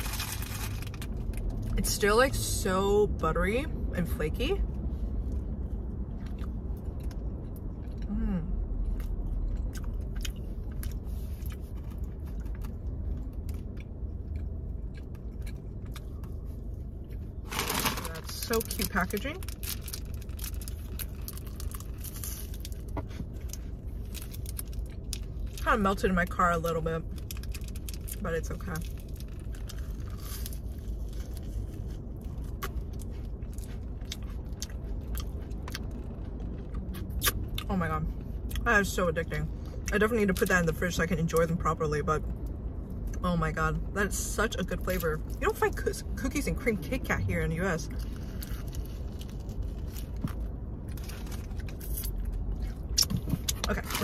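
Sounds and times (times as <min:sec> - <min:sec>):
steady low hum: 0:00.0 - 0:54.0
chewing flaky pastry: 0:04.7 - 0:25.6, 0:26.2 - 0:38.6, 0:47.9 - 0:54.0
car cabin rumble: 0:43.4 - 0:54.0.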